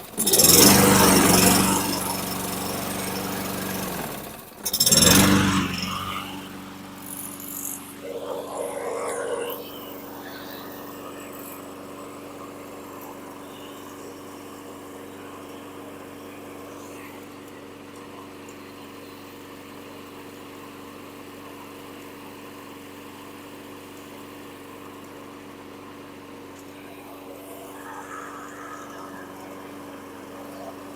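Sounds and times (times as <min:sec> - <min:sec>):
lawn mower engine running: 0:00.0 - 0:08.0.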